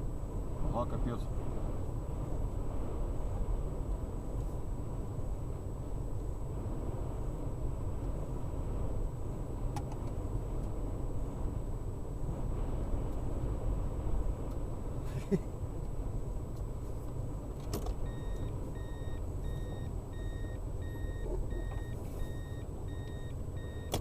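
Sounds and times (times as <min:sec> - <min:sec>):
car warning chime beeping: 0:18.0 - 0:24.0.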